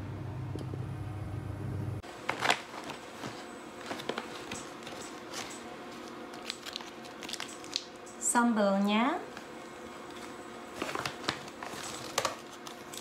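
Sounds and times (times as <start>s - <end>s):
steady low hum: 0.0s - 2.3s
plastic food packet crinkling: 2.2s - 8.0s, 10.7s - 13.0s.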